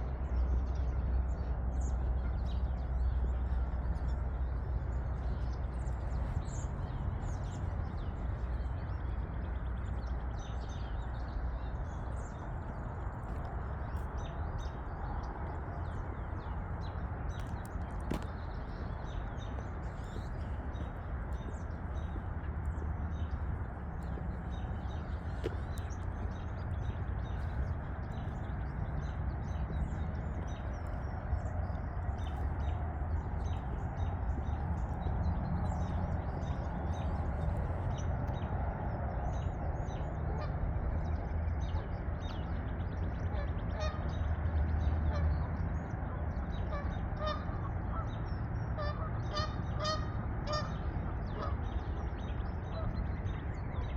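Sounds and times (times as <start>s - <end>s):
steady low rumble: 0.0s - 53.9s
small birds chirping: 1.8s - 40.1s
geese honking: 48.8s - 50.8s.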